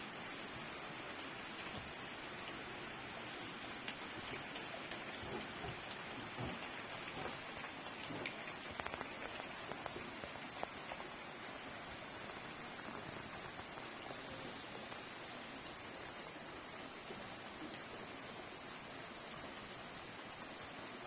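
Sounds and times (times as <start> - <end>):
steady rain hiss: 0.0 - 21.0
raindrops tapping nearby: 0.2 - 21.0.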